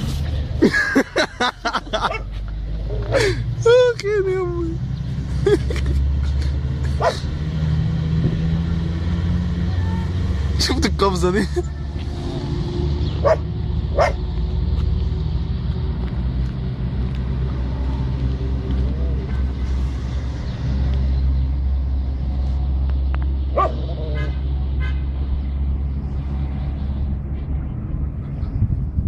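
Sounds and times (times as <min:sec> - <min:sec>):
dogs barking: 0:02.0 - 0:03.2, 0:06.9 - 0:07.3, 0:13.2 - 0:14.2, 0:23.5 - 0:25.0
steady low rumble: 0:11.6 - 0:29.0.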